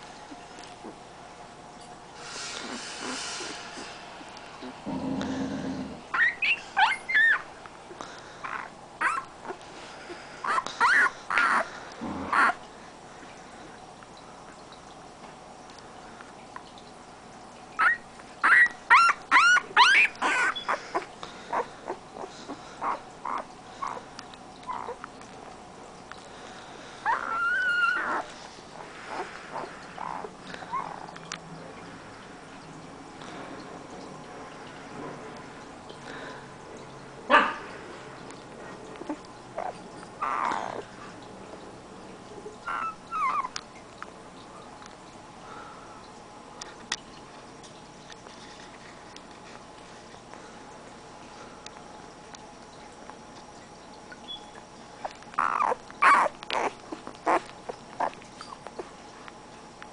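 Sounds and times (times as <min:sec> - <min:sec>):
puppy yips and whimpers: 0:06.1 - 0:07.5, 0:08.4 - 0:09.3, 0:10.4 - 0:11.7, 0:12.3 - 0:12.6, 0:17.8 - 0:22.0, 0:22.8 - 0:24.0, 0:27.0 - 0:28.3, 0:29.1 - 0:31.1, 0:39.0 - 0:40.8, 0:42.6 - 0:43.6, 0:54.3 - 0:58.8.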